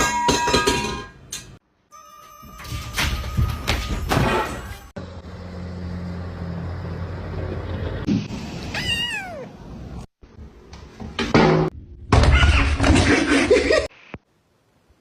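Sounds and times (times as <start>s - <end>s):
cat meowing: 8.7s - 9.6s.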